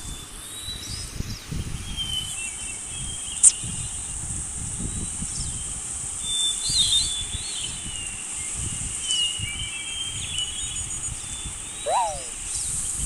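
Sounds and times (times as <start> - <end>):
small birds chirping: 0.6 - 4.1, 5.7 - 12.8
quick falling call: 11.9 - 12.4.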